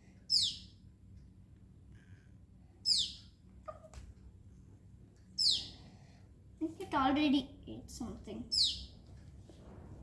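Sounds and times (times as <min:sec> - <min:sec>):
baby bird chirping: 0:00.2 - 0:00.8, 0:02.8 - 0:03.9, 0:05.4 - 0:06.0, 0:08.5 - 0:09.0.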